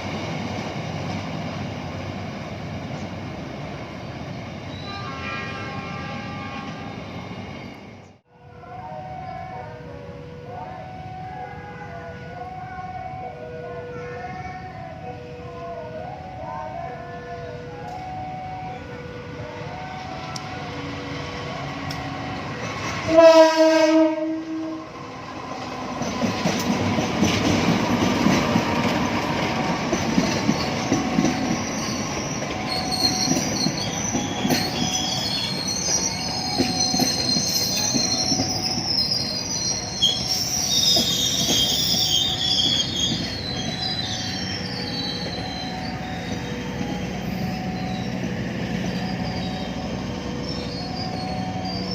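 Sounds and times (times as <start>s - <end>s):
train horn blast: 4.8s - 7.0s, 23.0s - 24.9s
train wheels on rails: 20.0s - 51.9s
level crossing alarm chiming: 29.5s - 51.9s
wheel squeal: 30.2s - 48.2s, 48.8s - 51.9s.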